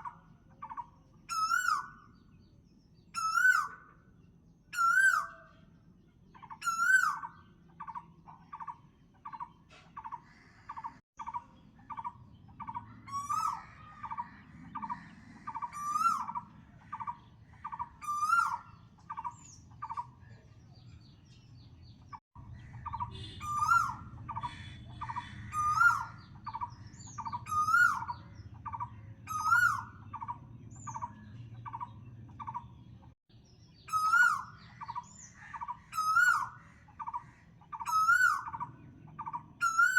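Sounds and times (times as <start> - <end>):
whistled bird call: 1.3 - 2.1, 3.1 - 3.9, 4.8 - 5.6, 6.6 - 7.9, 13.1 - 14.2, 17.7 - 20.0, 22.8 - 30.3, 33.8 - 37.2, 37.8 - 39.9.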